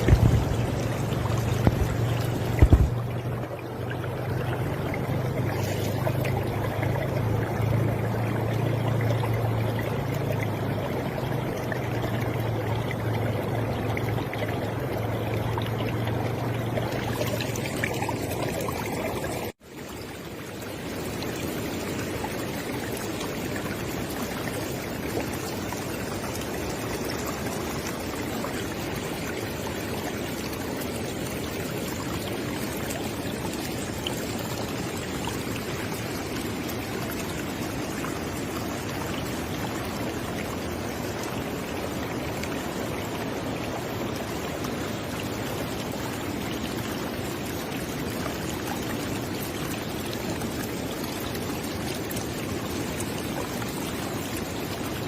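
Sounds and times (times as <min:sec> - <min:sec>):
low rumble: 0:00.0 - 0:03.5
river water flowing and splashing: 0:00.0 - 0:55.0.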